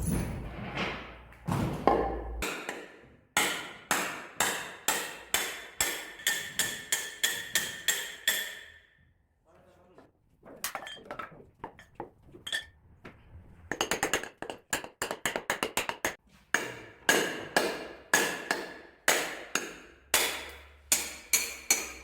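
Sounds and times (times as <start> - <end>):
hammer striking steel wedge: 2.0 - 8.8, 15.0 - 22.0.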